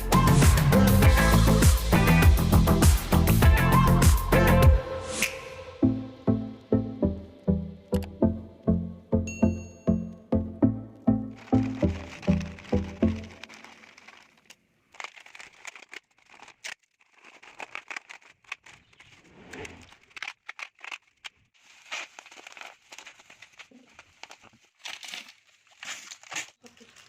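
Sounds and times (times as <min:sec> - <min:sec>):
crinkling and clicking: 0:11.3 - 0:27.0.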